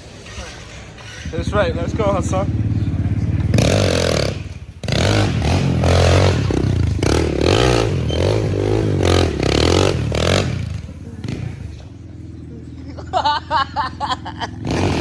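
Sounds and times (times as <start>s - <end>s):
scraping and clattering: 0.0s - 2.0s
motorcycle engine revving: 0.0s - 15.0s.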